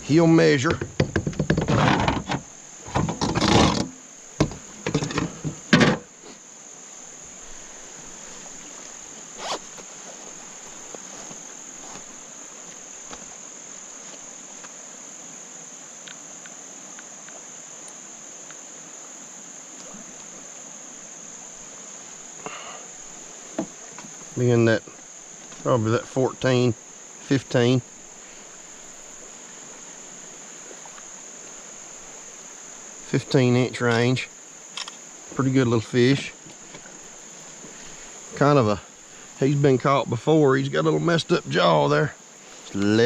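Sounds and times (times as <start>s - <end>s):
insects chirring: 0.0s - 43.0s
loud knocks: 0.7s - 6.1s
rustling: 7.4s - 14.8s.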